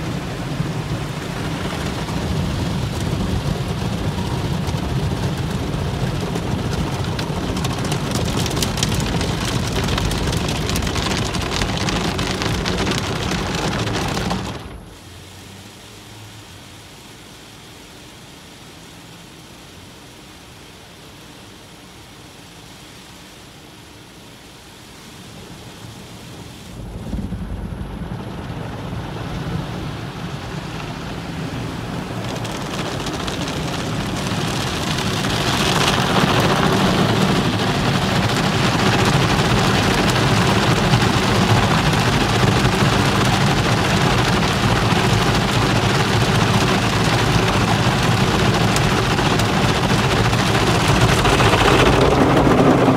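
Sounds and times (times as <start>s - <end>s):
car wash spray and machinery rushing: 0.0s - 52.9s
low rumble: 26.8s - 40.3s, 48.1s - 52.9s.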